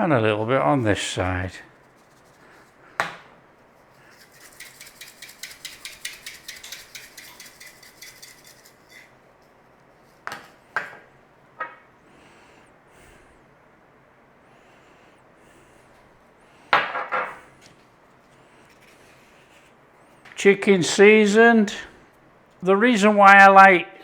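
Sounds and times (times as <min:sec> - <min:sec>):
spice shaker rattling: 0:01.6 - 0:02.8, 0:03.7 - 0:10.6.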